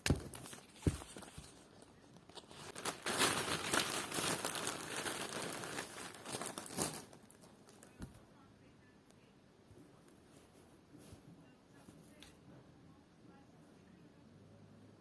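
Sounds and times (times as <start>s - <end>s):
packaging crinkling: 0.0s - 8.0s.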